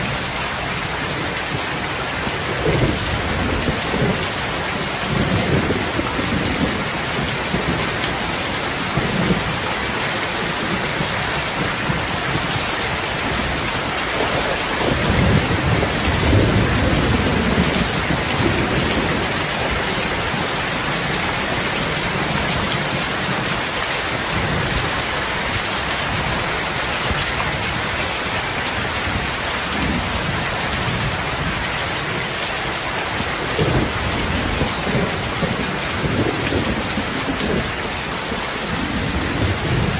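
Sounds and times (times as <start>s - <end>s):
heavy rain falling: 0.0s - 39.9s
thunder rumbling: 2.1s - 26.5s, 33.1s - 39.9s.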